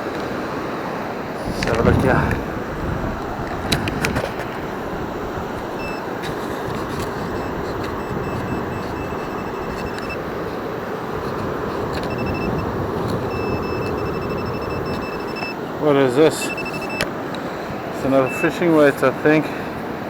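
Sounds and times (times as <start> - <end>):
surf: 0.0 - 20.0
wind: 0.0 - 20.0
metal detector beeping: 5.5 - 19.1.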